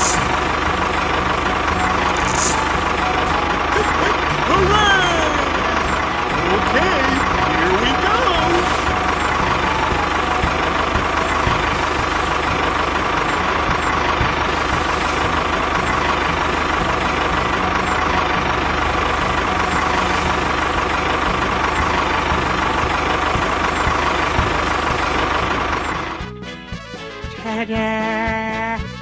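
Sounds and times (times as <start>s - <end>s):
vehicle engine running: 0.0s - 26.4s.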